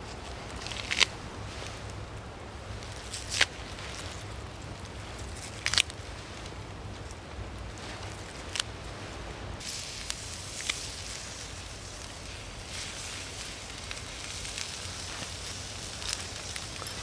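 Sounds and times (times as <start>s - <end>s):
steady hiss: 0.0s - 17.0s
campfire crackling and popping: 0.3s - 17.0s.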